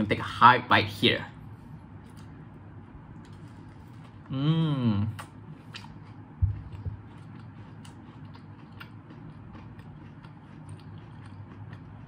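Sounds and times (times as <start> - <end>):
person chewing: 3.2 - 12.0.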